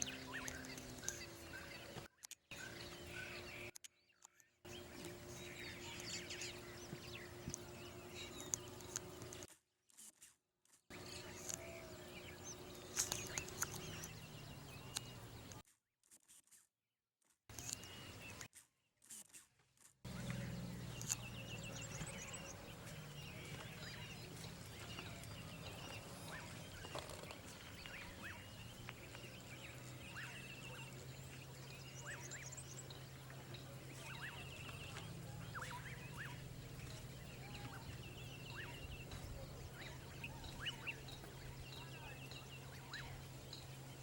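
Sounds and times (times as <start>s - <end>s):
birds chirping and calling: 0.0s - 9.5s, 10.9s - 15.6s, 20.1s - 44.0s
steady low hum: 4.7s - 9.5s, 10.9s - 15.6s, 20.1s - 44.0s.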